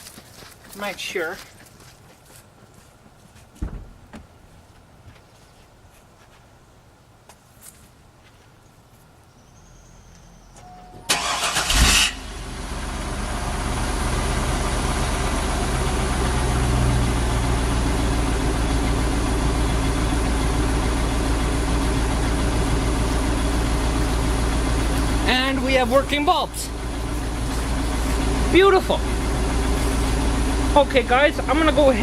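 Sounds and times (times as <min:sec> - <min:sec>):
car engine idling: 0:11.0 - 0:32.0
starter motor cranking: 0:11.1 - 0:12.3.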